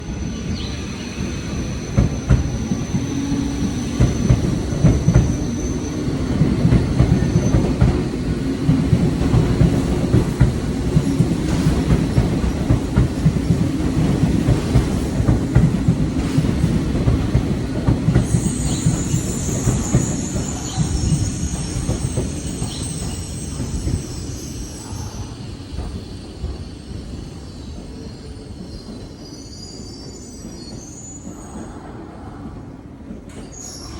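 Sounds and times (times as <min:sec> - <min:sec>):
electric train rumbling: 0:00.0 - 0:33.9
high wheel squeal: 0:18.2 - 0:25.8, 0:33.4 - 0:33.9.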